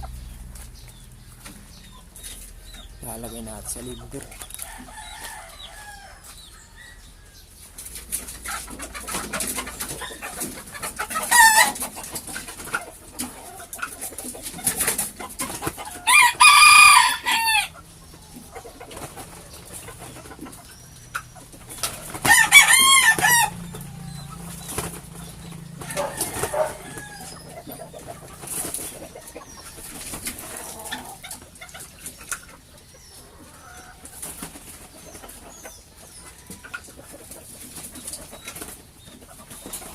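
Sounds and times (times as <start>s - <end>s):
chickens clucking: 0.0s - 39.9s
rooster crowing: 4.6s - 7.5s, 15.8s - 17.8s, 22.2s - 24.3s, 25.7s - 27.7s.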